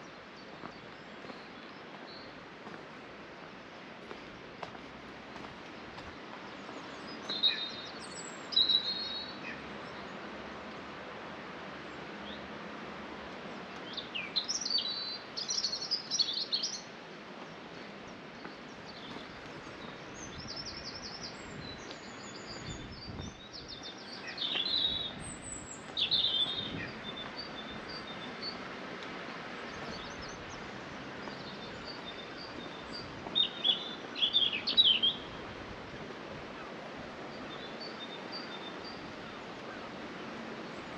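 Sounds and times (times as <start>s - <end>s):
steady background noise: 0.0s - 40.9s
small birds chirping and trilling: 5.7s - 10.9s, 13.5s - 40.0s.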